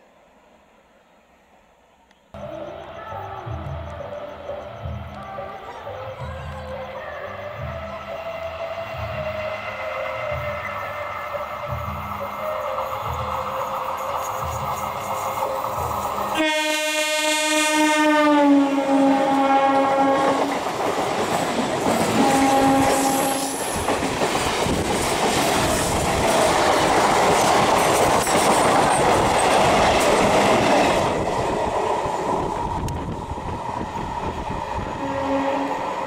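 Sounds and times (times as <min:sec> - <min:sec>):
train coaches passing clickety-clack: 0:02.4 - 0:36.0
train air horn blast: 0:16.3 - 0:20.5, 0:22.1 - 0:23.6, 0:35.0 - 0:36.0.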